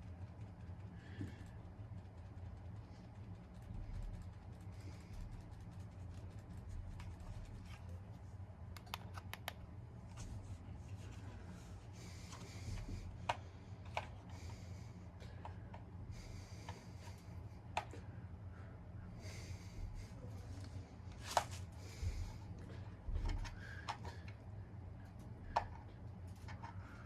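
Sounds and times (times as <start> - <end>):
ceiling fan motor hum: 0.0 - 27.0
sharp clicks: 8.7 - 9.6.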